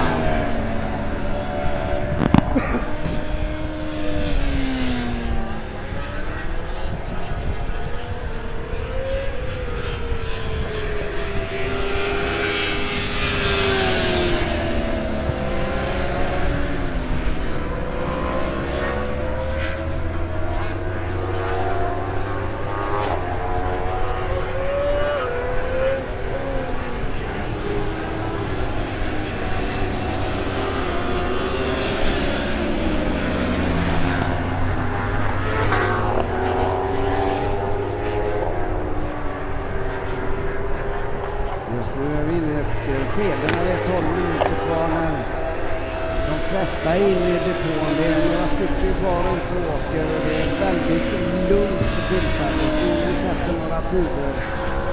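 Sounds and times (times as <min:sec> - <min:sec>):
racing motorcycle engines: 0:00.0 - 0:54.9.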